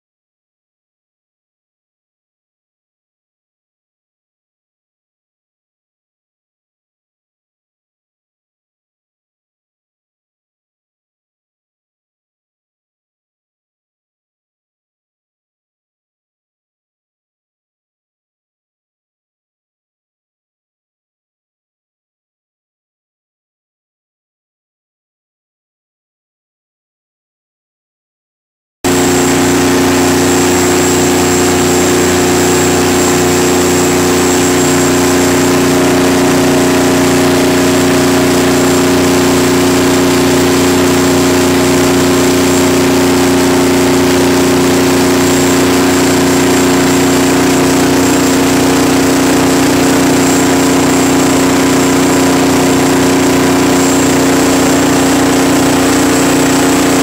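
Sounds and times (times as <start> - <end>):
diesel generator engine running: 28.9 - 57.0
thin high whine: 28.9 - 57.0.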